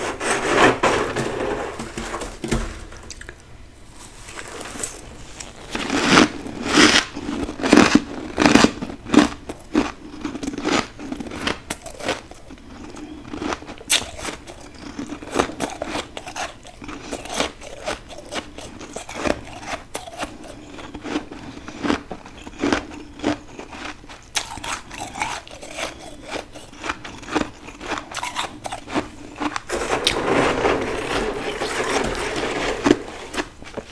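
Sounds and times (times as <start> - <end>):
frost being chewed: 4.3 - 30.2.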